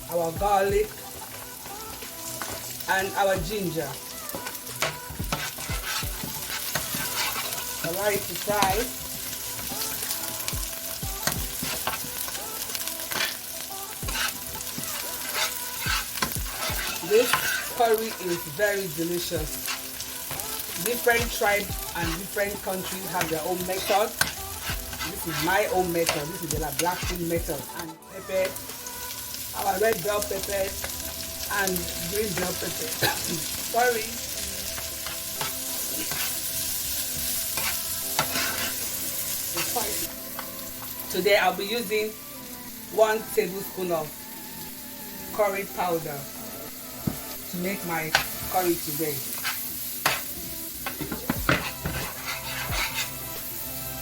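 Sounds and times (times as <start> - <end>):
vegetables sizzling in a pan: 0.0 - 54.0
spoon scraping against pan: 4.3 - 8.9, 11.2 - 27.4, 32.2 - 40.9, 48.1 - 53.3.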